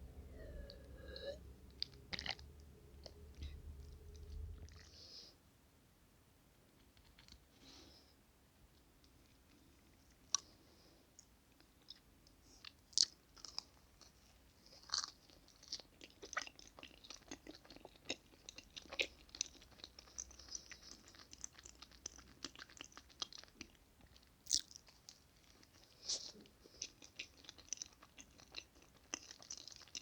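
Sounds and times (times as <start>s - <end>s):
chewing and wet mouth sounds: 0.2s - 5.1s, 11.2s - 30.0s.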